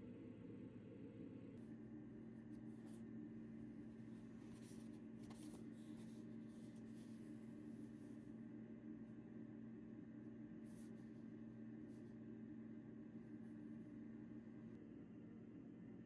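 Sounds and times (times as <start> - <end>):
faint rustles of handling: 2.4 - 8.4, 10.6 - 12.3.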